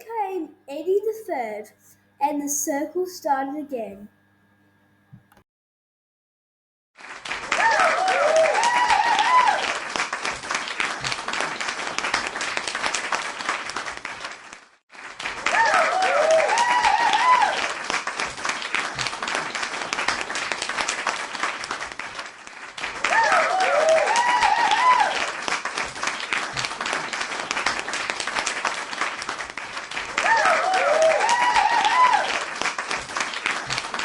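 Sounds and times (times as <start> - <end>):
crowd clapping: 7.0 - 34.0
whooping cheers: 7.4 - 10.0, 15.4 - 17.8, 23.0 - 25.5, 30.1 - 32.7.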